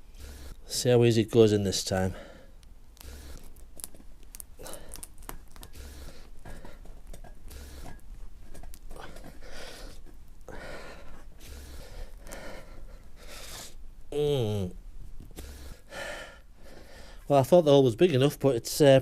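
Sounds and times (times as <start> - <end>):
man breathing hard and straining: 0.0 - 0.7, 1.9 - 3.5, 4.5 - 8.0, 8.9 - 14.7, 15.3 - 17.3
tool clicking and scraping in rubber: 2.6 - 10.2.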